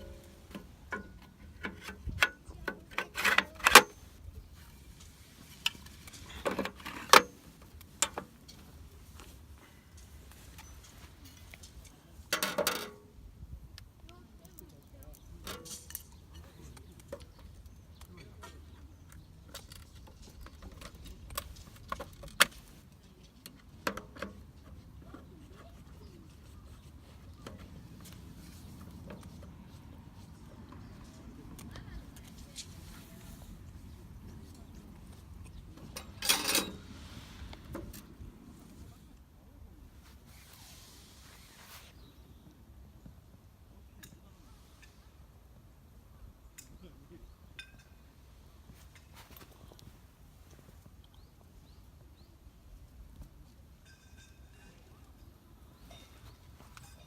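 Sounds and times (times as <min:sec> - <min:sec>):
short rubbing scrapes: 0:40.1 - 0:42.1.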